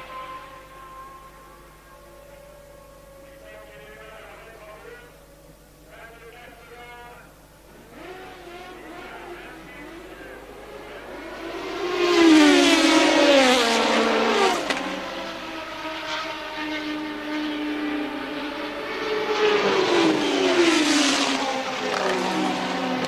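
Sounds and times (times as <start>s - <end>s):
racing cars passing at speed: 7.7s - 23.0s.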